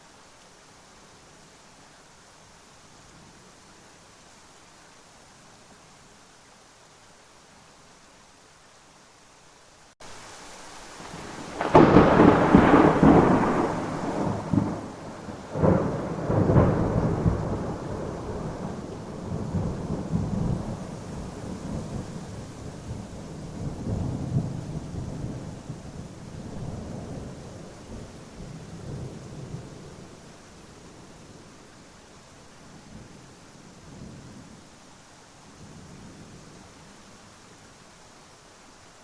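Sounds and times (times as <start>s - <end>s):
steady rain: 0.0s - 39.0s
thunder cracks and rumbles: 11.1s - 22.1s.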